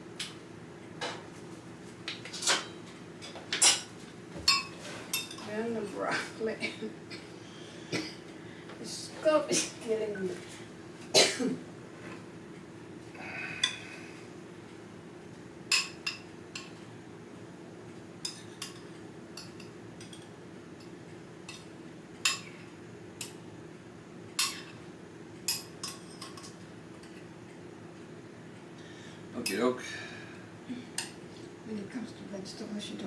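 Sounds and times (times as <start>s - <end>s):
utensils clinking on a plate: 2.3s - 5.5s, 18.2s - 20.9s, 24.4s - 24.8s, 25.5s - 27.3s.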